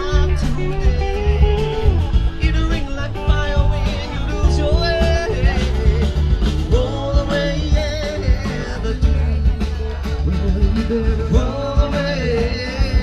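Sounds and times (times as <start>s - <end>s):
upbeat rock song with vocals: 0.0s - 13.0s.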